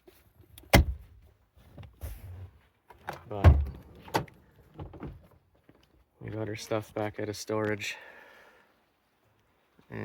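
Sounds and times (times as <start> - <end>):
car doors thunking: 0.7 - 1.0, 3.4 - 5.2.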